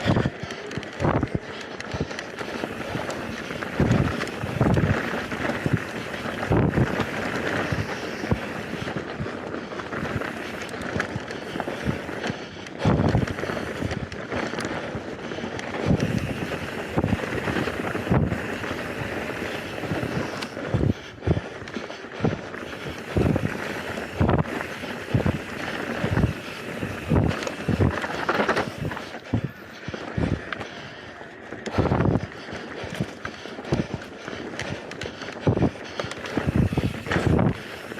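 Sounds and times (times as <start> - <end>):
wind noise on microphone: 0.0 - 30.6, 31.6 - 37.9
bike tyres on dirt: 0.0 - 37.9.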